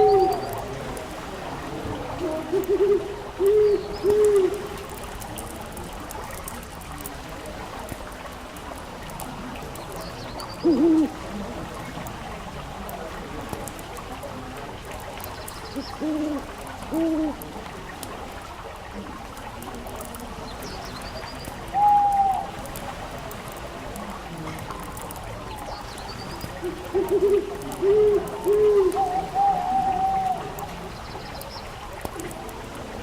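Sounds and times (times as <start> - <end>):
fireplace fire crackling: 21.4 - 32.9
owl hooting: 21.8 - 22.5, 26.6 - 30.6.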